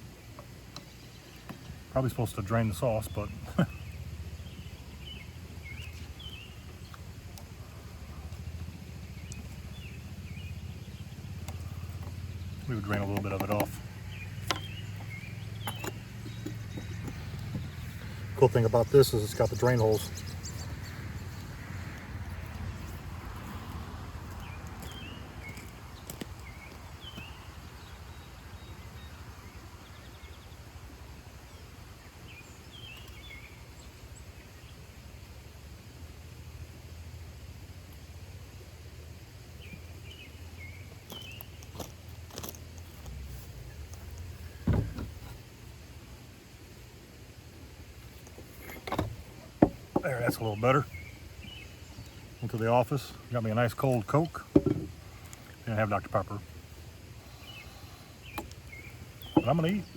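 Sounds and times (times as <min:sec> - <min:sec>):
birds chirping: 0:00.0 - 0:35.5, 0:37.8 - 0:59.9
outdoor background noise: 0:00.0 - 0:59.9
bird chirping falling notes: 0:57.3 - 0:59.9.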